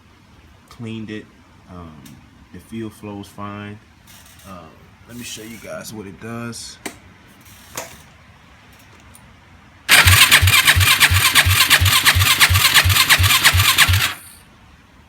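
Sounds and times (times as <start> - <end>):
engine cranking by electric starter: 9.9 - 14.4.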